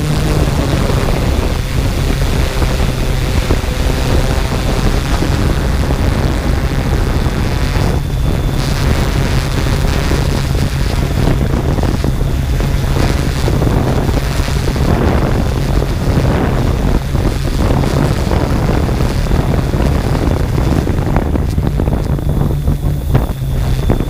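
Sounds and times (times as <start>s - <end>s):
drone motors humming: 0.0s - 24.0s
wind buffeting microphone: 0.0s - 24.0s.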